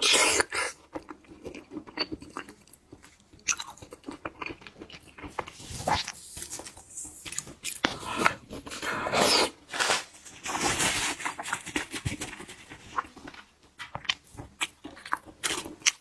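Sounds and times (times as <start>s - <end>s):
wet chewing and smacking: 0.0s - 9.0s, 12.9s - 16.0s.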